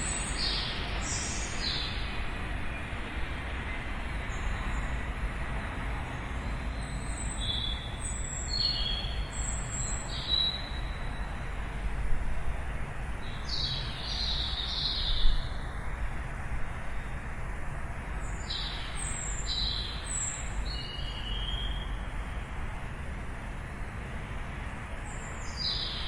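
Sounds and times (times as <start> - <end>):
songbirds chirping: 0.0 - 11.5, 13.0 - 16.0, 17.9 - 22.5, 24.2 - 26.0.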